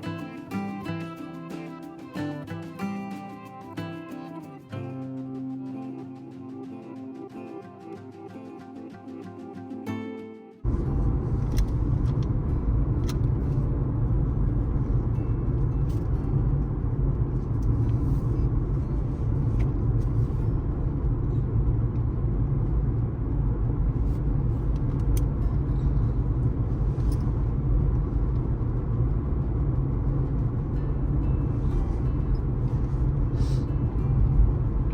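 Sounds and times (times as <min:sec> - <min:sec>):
tyre and road noise: 0:10.6 - 0:34.9.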